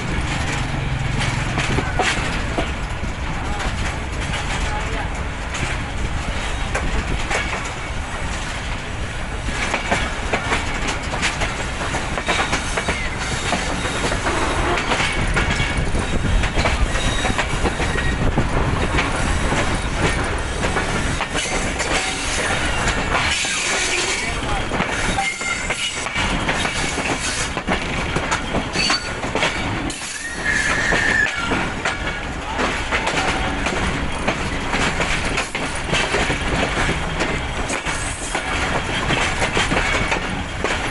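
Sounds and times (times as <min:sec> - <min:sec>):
train wheels clattering over joints: 0:00.0 - 0:40.9
high wheel squeal: 0:12.2 - 0:14.8, 0:15.9 - 0:18.3, 0:21.4 - 0:26.1, 0:28.7 - 0:31.7.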